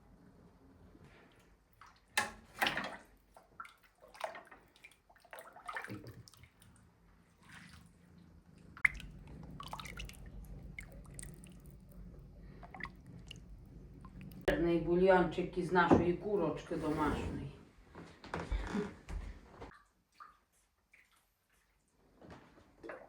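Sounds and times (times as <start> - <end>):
broth splashing and dripping: 1.8 - 8.0, 8.7 - 14.5.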